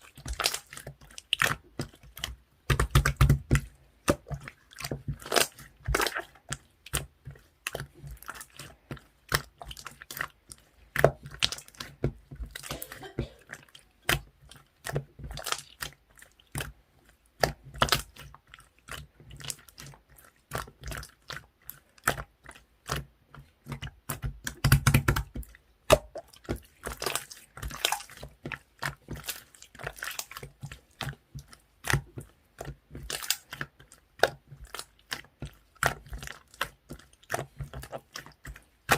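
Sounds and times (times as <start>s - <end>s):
slime squelching and clicking: 0.0s - 38.9s.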